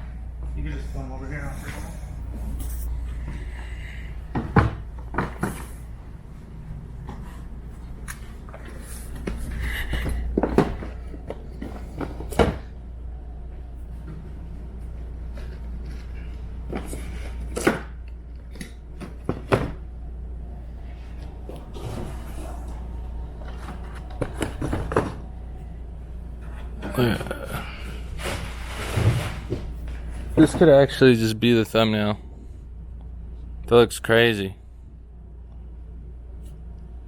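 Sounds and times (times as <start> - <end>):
low hum: 0.0 - 37.0
cardboard boxes knocking and thudding: 9.2 - 12.7.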